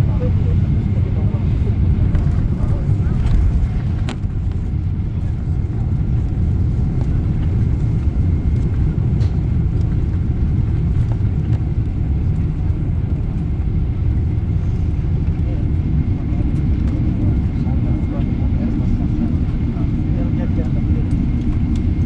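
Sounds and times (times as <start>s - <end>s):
airliner low rumble: 0.0s - 22.0s.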